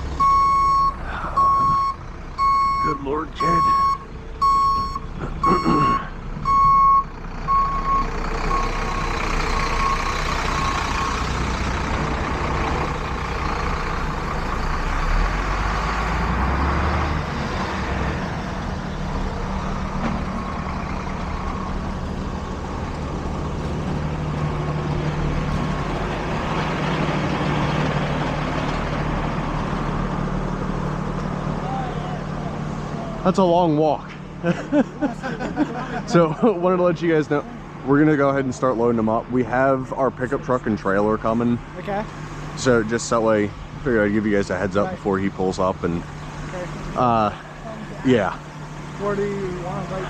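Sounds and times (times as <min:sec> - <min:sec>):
vehicle engine running: 0:00.0 - 0:50.0
truck reversing alarm beeps: 0:00.2 - 0:11.8, 0:20.3 - 0:22.1.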